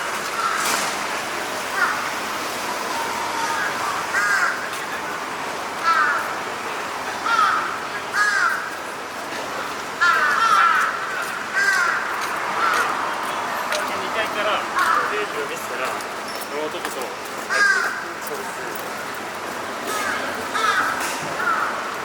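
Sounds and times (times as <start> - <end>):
crows cawing: 0.3 - 0.8, 1.7 - 2.2, 3.3 - 4.8, 5.8 - 6.4, 7.2 - 8.8, 10.0 - 13.0, 14.7 - 15.3, 17.5 - 18.2, 19.9 - 22.0.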